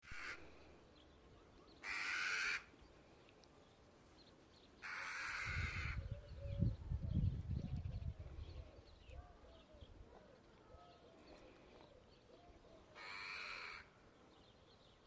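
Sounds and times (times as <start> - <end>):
bird harsh rasping calls: 1.8 - 2.7, 13.0 - 13.9.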